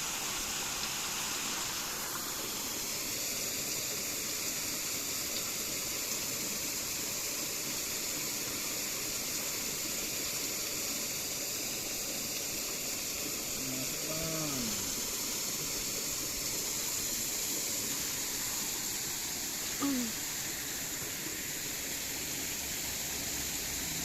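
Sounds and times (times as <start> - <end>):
high-pitched outdoor hiss: 0.0 - 24.0.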